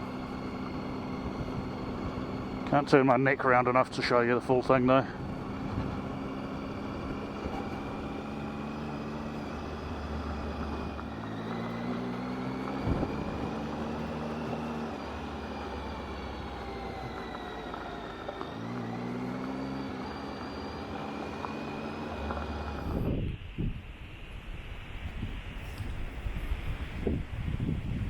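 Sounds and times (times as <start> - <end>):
motorcycle engine running: 0.0 - 23.8
tyre and wind noise: 5.2 - 19.0, 19.7 - 28.0.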